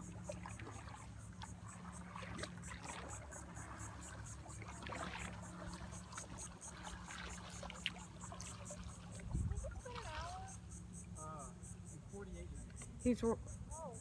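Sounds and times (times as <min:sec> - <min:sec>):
small clicks and splashes: 0:00.2 - 0:10.6.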